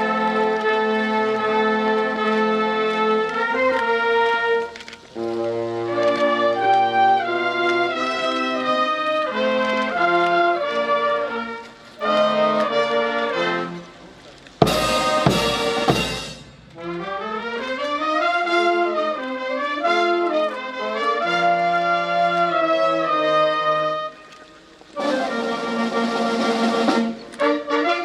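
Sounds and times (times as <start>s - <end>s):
brass band playing: 0.0s - 28.0s
cymbal crashes and drum strokes: 14.6s - 16.8s.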